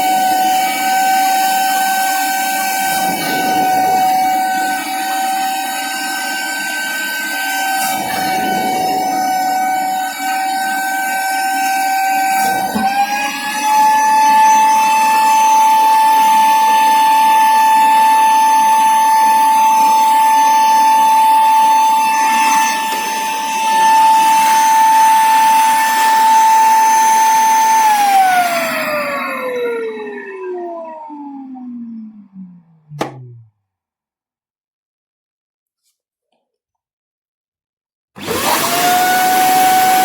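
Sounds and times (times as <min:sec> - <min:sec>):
suction motor whining: 0:38.2 - 0:40.0.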